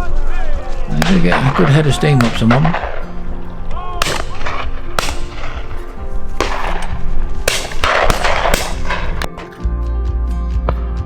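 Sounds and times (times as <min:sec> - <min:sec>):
background music: 0:00.0 - 0:11.0
shotgun shots: 0:00.9 - 0:09.4.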